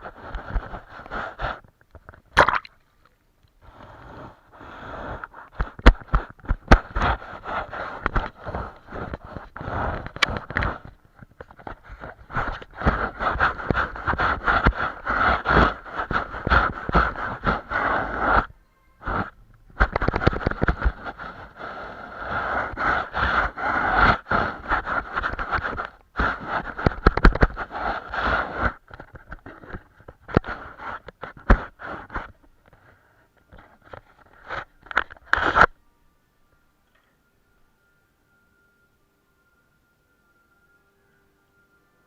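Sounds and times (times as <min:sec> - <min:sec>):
paintbrush scrubbing on canvas: 0:11.5 - 0:18.5.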